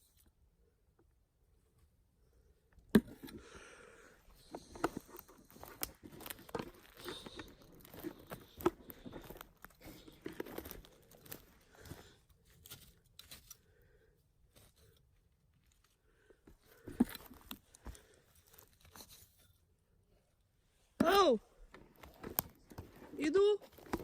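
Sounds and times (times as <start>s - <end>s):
footsteps on dry leaves and twigs: 4.4s - 13.5s, 21.9s - 24.0s.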